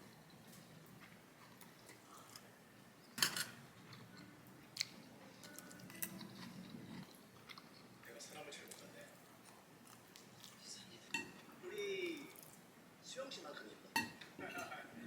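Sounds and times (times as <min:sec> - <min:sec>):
eating sounds: 0:03.6 - 0:12.7.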